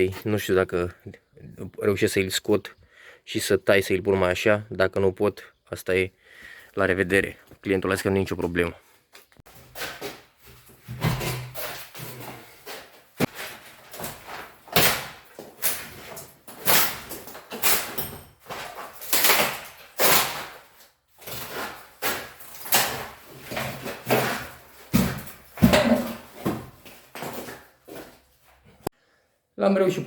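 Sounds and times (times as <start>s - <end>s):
heavy knocks and bangs on wood: 23.5s - 26.8s.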